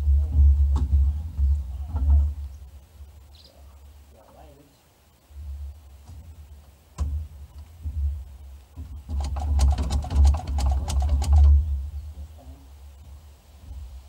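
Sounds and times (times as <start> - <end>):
starter motor cranking engine: 9.0 - 11.6.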